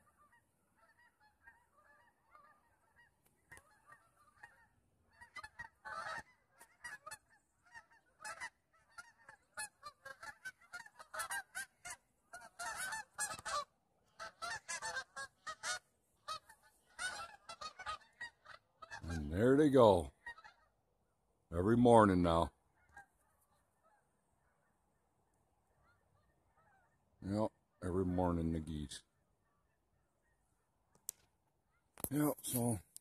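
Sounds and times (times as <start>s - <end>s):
geese honking in flight: 0.0s - 21.4s, 22.0s - 27.9s, 29.1s - 30.8s.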